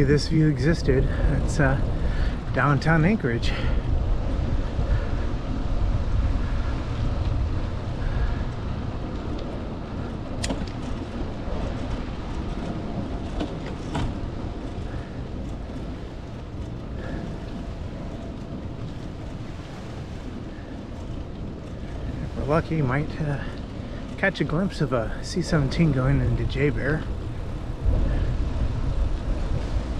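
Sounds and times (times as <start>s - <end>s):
bicycle rolling: 0.0s - 29.9s
wind rumble on microphone: 0.0s - 29.9s.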